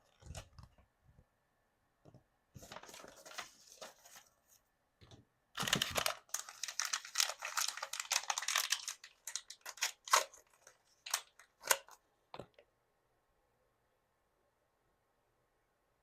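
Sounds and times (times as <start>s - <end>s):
plastic packaging crinkling: 5.6s - 12.0s.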